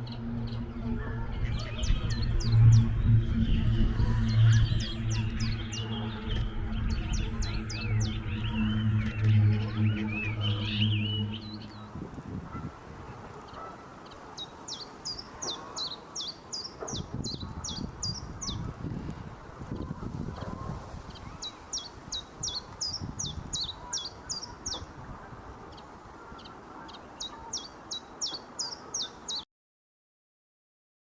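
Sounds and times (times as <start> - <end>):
bird singing high notes: 0.0 - 12.6.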